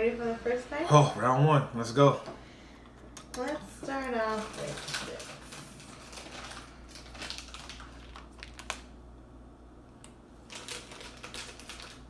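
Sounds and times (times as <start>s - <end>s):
plastic package crinkling: 4.2s - 9.0s, 10.4s - 12.0s.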